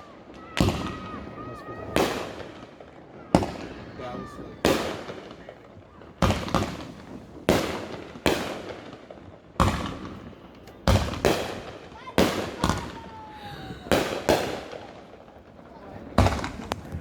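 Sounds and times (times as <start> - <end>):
firework shells bursting with bangs: 6.2 - 17.0.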